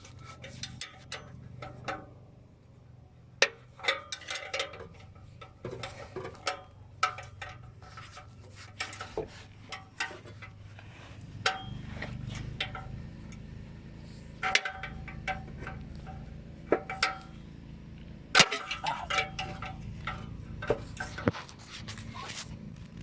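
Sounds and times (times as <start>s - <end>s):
low steady hum: 0.0s - 23.0s
loud metal clanks: 14.3s - 17.5s, 18.3s - 21.5s
metal tools clinking: 18.4s - 22.1s.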